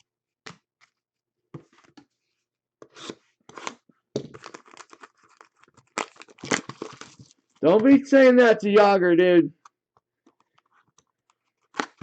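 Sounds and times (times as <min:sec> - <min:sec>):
card wrappers tearing and crinkling: 0:04.4 - 0:08.0.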